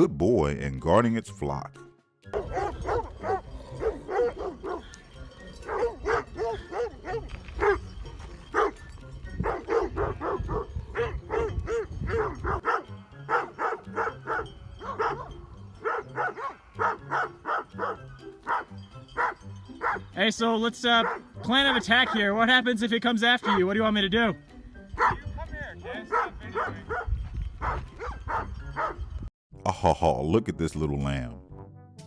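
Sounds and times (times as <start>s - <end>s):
dog barking: 2.3s - 5.0s, 5.6s - 7.9s, 8.5s - 8.8s, 9.4s - 20.1s, 21.0s - 22.3s, 23.4s - 23.7s, 25.0s - 25.2s, 26.0s - 29.0s.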